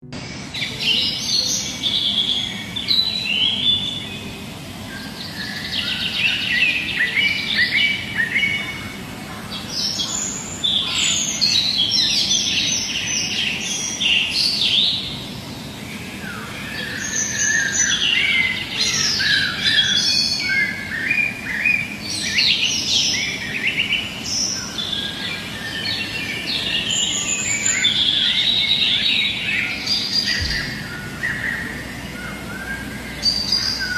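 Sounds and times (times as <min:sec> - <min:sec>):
low background hum: 0:00.0 - 0:33.9
birds chirping and singing: 0:00.1 - 0:33.9.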